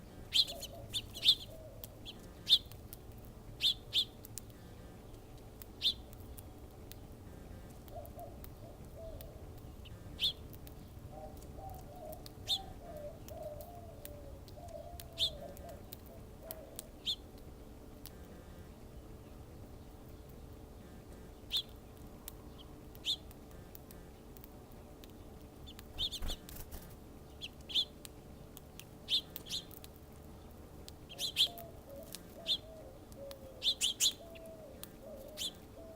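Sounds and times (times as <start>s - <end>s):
dove cooing: 0.0s - 2.7s, 7.3s - 10.4s, 11.1s - 17.2s, 31.1s - 35.9s
small birds chirping: 0.0s - 35.9s.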